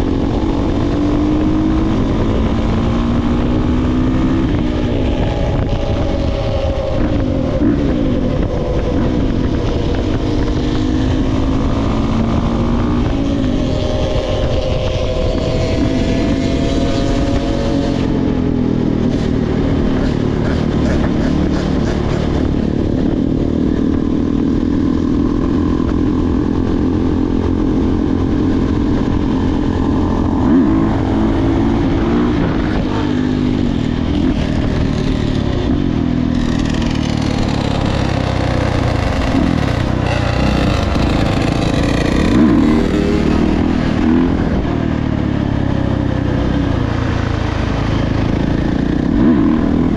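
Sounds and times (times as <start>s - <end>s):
dirt bike engine running: 0.0s - 49.9s.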